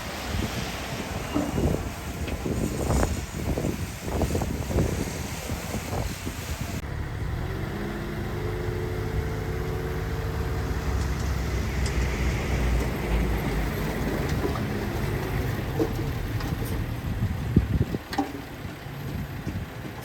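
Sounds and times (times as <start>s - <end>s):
wind on microphone: 0.0s - 6.8s, 10.6s - 18.2s
heavy diesel machinery running: 0.0s - 20.0s.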